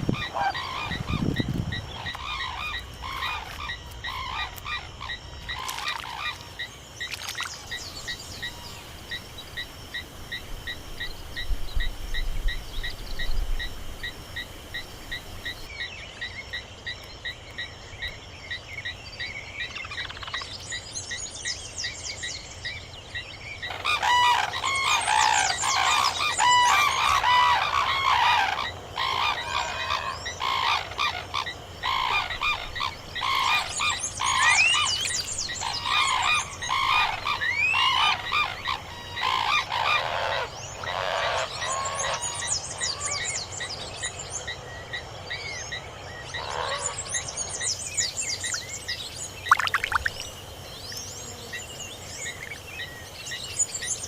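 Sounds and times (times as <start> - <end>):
birds chirping and whistling: 49.5 - 50.3.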